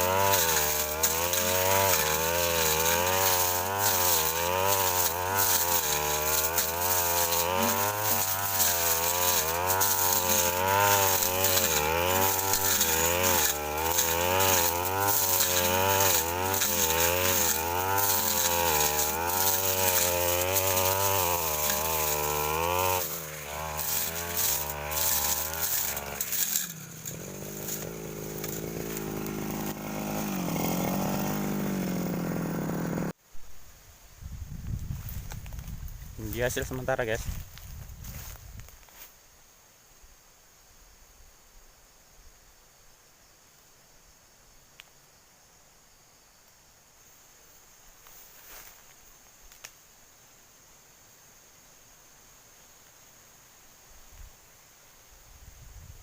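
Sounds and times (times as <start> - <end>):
blade slashing through brush: 0.0 - 31.8
brush cutter engine revving: 0.0 - 33.2, 36.2 - 38.4.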